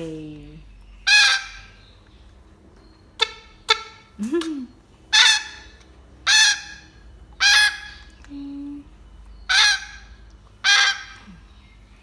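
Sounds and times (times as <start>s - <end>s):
parrot honking begging calls: 1.0s - 1.8s, 3.2s - 4.2s, 5.1s - 8.1s, 9.5s - 11.4s.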